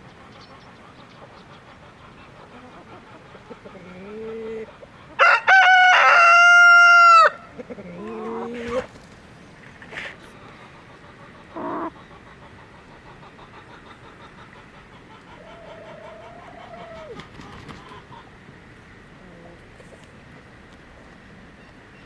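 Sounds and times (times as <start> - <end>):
chicken calls: 0.1 - 9.0, 10.0 - 18.4
rooster crowing: 5.2 - 7.4.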